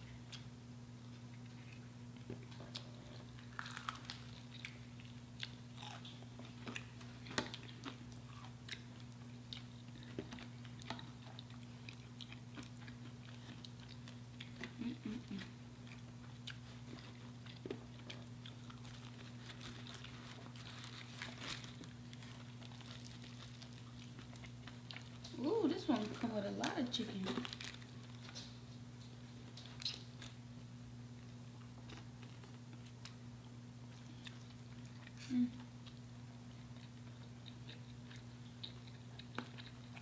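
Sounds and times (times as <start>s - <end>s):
crunching fried chicken: 1.1s - 26.0s.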